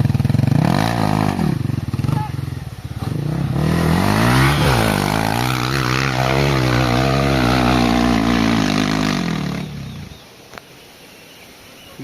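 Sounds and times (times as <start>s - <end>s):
motorcycle engine revving: 0.0s - 10.2s.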